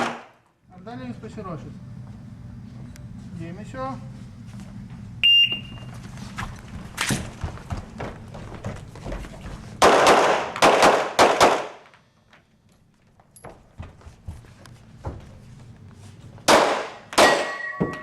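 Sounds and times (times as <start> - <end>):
handgun shots echoing: 16.5 - 18.0.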